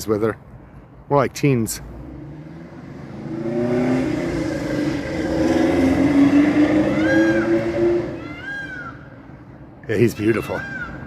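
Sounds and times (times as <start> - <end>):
car driving past: 1.8 - 8.8.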